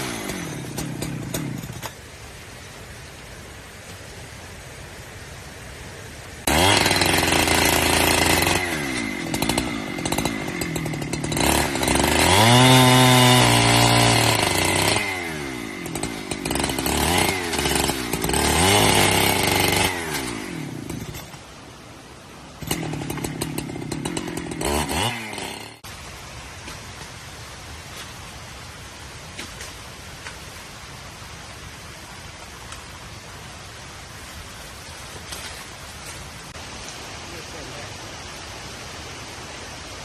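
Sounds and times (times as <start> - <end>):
chainsaw revving cutting wood: 0.0 - 2.0, 6.4 - 21.4, 22.6 - 25.9.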